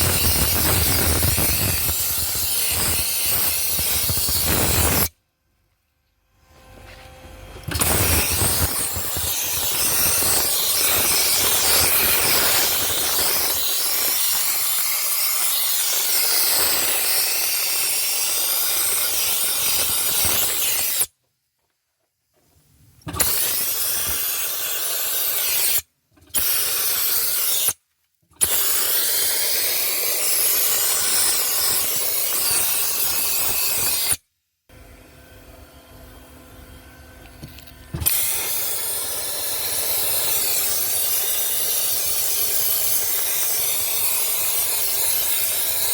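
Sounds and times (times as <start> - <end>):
compressed air blasting hiss: 0.0 - 5.1, 7.7 - 21.1, 23.1 - 25.8, 26.4 - 27.8, 28.4 - 34.2, 38.0 - 45.9.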